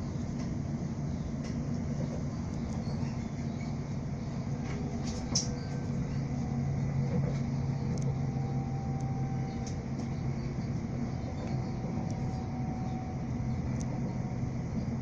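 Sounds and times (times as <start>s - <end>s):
train rumble inside carriage: 0.0s - 15.0s.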